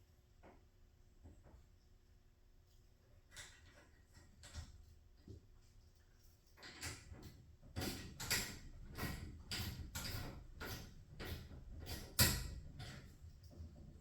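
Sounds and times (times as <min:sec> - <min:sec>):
garage door hardware clacking: 0:06.8 - 0:13.2.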